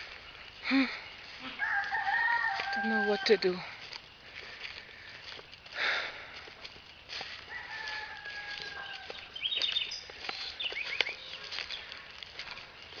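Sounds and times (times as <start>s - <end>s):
small birds chirping: 0.0s - 2.1s, 2.8s - 13.0s
rooster crowing: 1.4s - 3.7s, 7.2s - 9.6s
crackles: 3.6s - 13.0s.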